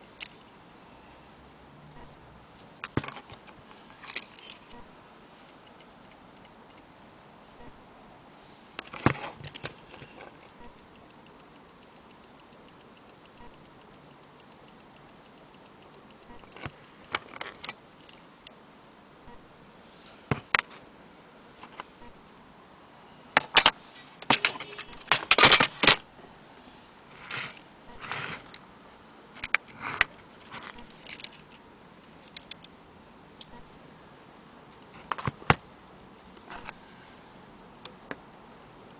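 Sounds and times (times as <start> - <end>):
sharp clicks and rattles: 8.8 - 18.6, 23.4 - 26.0, 29.4 - 31.6
clock ticking faintly: 10.4 - 17.0.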